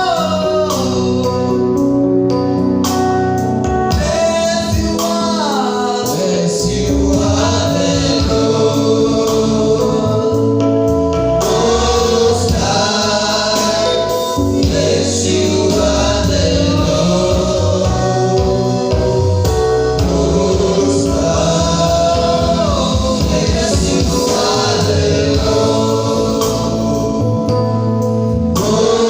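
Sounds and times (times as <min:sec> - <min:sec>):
band with steady beat: 0:00.0 - 0:29.0
choir singing: 0:05.5 - 0:10.6, 0:11.4 - 0:27.3, 0:28.5 - 0:29.0.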